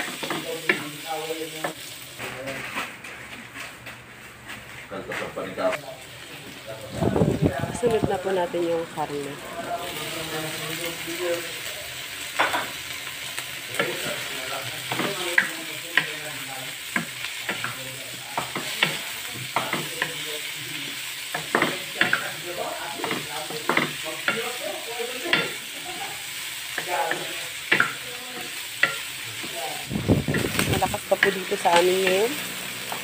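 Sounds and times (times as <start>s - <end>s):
food sizzling in hot oil: 0.0s - 4.9s, 5.6s - 33.0s
wooden spatula scraping a wok: 1.7s - 5.8s.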